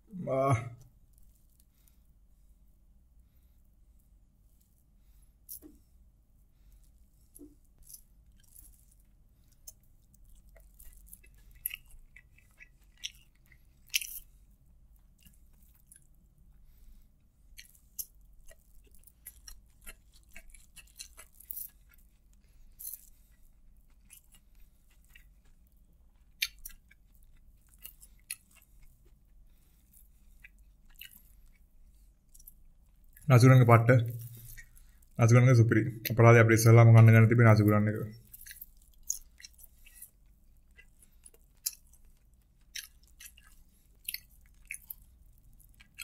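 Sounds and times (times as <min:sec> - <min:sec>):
wet chewing clicks: 0:07.4 - 0:14.4, 0:17.5 - 0:33.3, 0:38.2 - 0:46.0.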